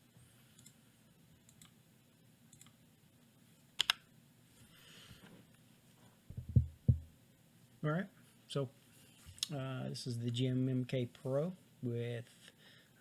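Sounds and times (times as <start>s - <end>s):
dull low knocks: 6.3s - 7.1s.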